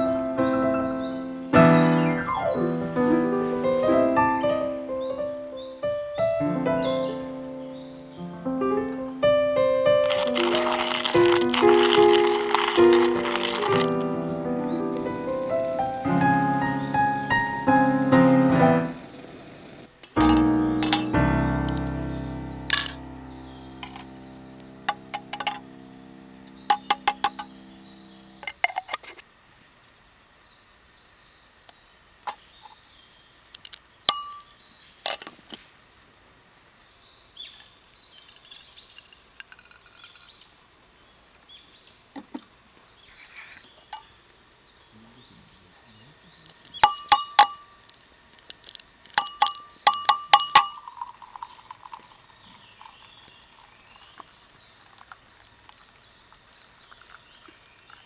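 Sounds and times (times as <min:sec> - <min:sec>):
background music: 0:00.0 - 0:19.1, 0:20.2 - 0:28.4
birds chirping faintly: 0:00.0 - 0:29.4, 0:30.3 - 0:58.0
metal cookware clinking: 0:20.2 - 0:21.1, 0:22.7 - 0:23.0, 0:24.9 - 0:25.6, 0:26.7 - 0:27.5, 0:33.6 - 0:34.5, 0:46.5 - 0:47.7, 0:48.4 - 0:52.0.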